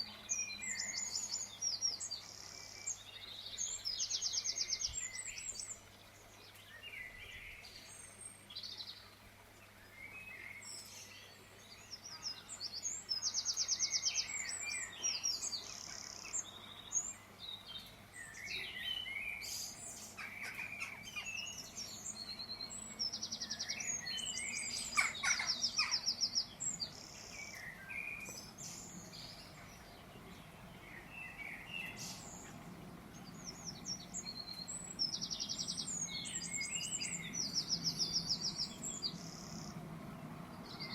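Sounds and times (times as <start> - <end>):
faint steady hum: 0.0 - 40.9
songbirds chirping and singing: 0.0 - 40.9.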